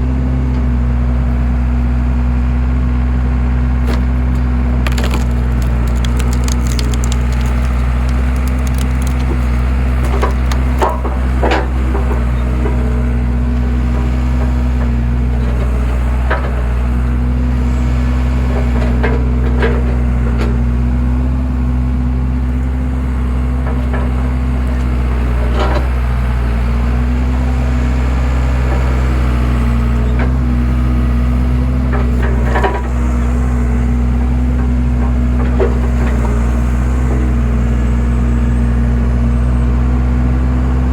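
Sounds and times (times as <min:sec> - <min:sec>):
engine running: 0:00.0 - 0:40.9
wood cracking and splintering: 0:03.8 - 0:12.4.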